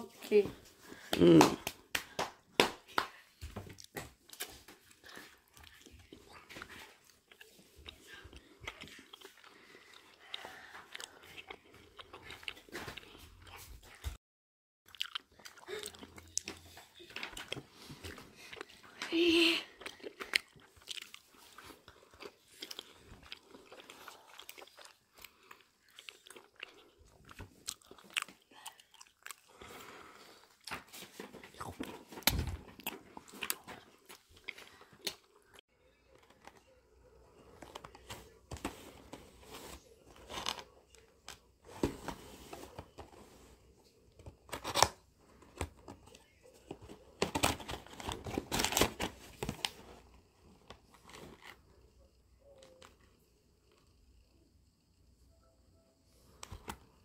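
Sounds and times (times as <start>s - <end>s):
chewing sticky rice cakes: 3.8s - 14.0s, 14.9s - 18.9s, 19.6s - 30.8s, 31.4s - 38.4s.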